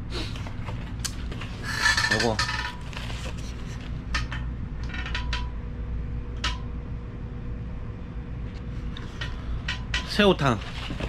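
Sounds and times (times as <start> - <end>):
low machine hum: 0.0 - 11.0
objects clicking and knocking: 0.7 - 3.4.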